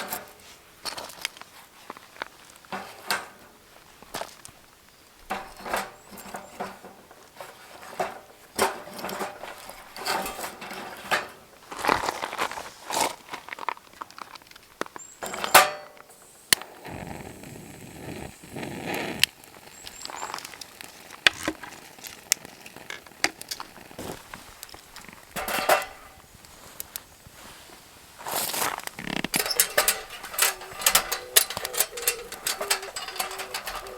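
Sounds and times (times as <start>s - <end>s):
camp gear clinking and knocking: 0.0s - 16.3s, 22.9s - 27.6s, 28.4s - 33.9s.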